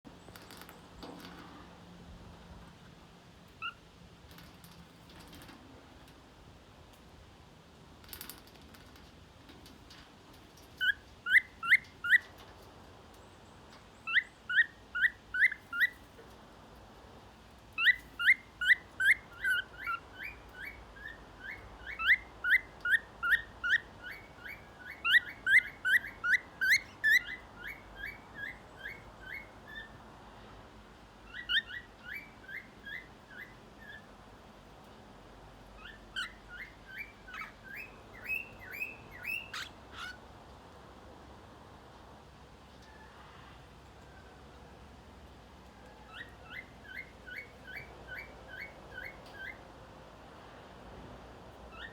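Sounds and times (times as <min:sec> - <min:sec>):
parrot chirping: 0:10.8 - 0:12.2, 0:14.1 - 0:16.0, 0:17.8 - 0:29.9, 0:31.3 - 0:34.1, 0:35.8 - 0:40.2.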